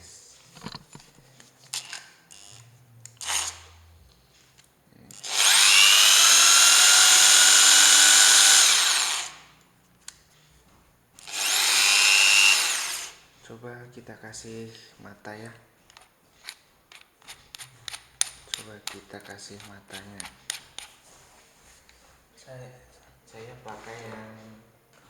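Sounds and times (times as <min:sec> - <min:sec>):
impact drill motor whine: 0:03.2 - 0:03.7, 0:05.2 - 0:09.5, 0:11.2 - 0:13.2.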